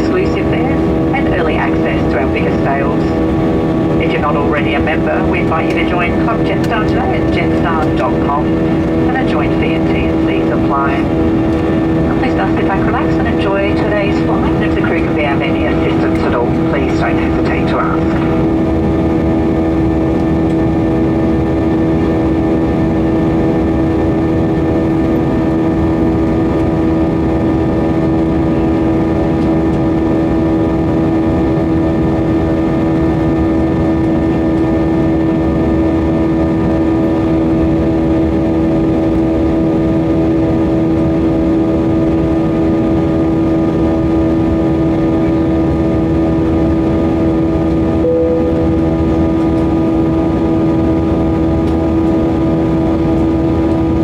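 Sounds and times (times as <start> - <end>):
airflow rush in aircraft cabin: 0.0 - 54.0
jet engine hum: 0.0 - 54.0
faint tone: 48.0 - 49.8.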